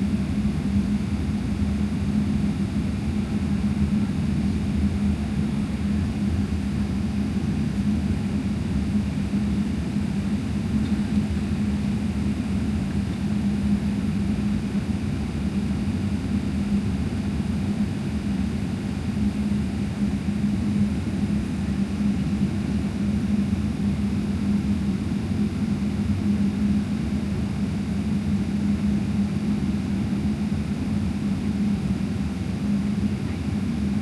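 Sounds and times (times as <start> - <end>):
airplane cabin drone: 0.0 - 34.0.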